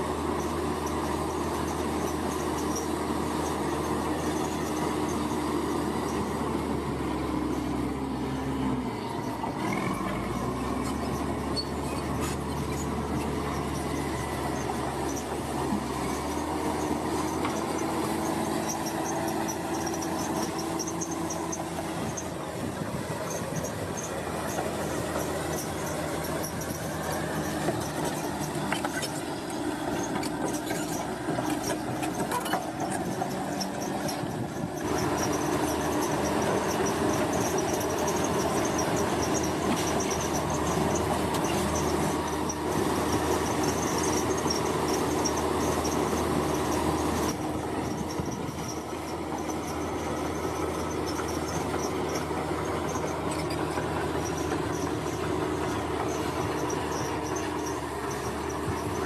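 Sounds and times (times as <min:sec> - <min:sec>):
construction machinery engine drone: 0:00.0 - 0:59.0
high metallic squeal: 0:10.8 - 0:15.4.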